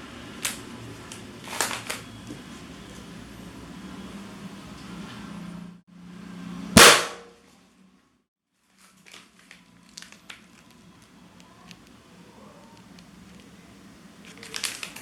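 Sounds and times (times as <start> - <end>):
balloon bursting: 6.8 - 7.2
light clicks and crackles: 8.8 - 12.0, 14.2 - 15.0.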